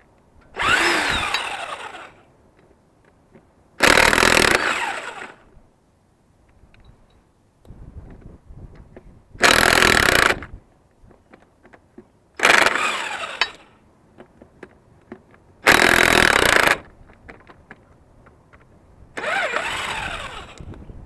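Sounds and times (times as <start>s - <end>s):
impact wrench bursts: 0.6s - 2.2s, 3.8s - 5.4s, 12.4s - 13.7s, 15.6s - 16.8s, 19.2s - 20.7s
tools clicking and knocking: 13.4s - 13.6s.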